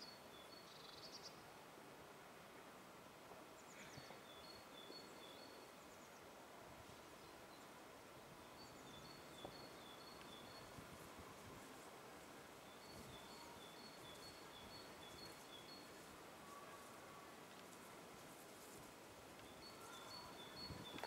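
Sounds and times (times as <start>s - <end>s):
distant small birds calling: 8.4s - 10.8s, 12.6s - 17.4s, 19.3s - 21.0s.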